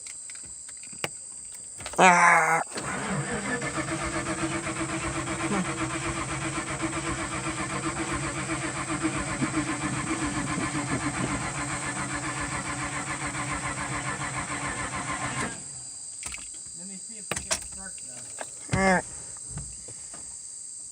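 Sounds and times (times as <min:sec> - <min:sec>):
engine cranking with starter: 0:02.6 - 0:16.5.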